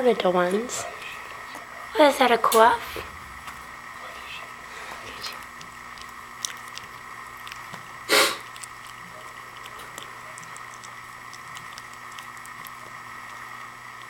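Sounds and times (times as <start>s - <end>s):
steady hum: 0.0s - 14.0s
loud burst of noise: 2.8s - 4.7s.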